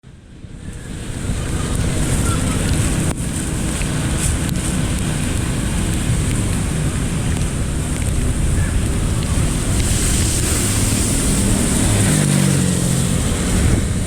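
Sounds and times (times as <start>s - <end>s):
water rushing: 0.4s - 14.0s.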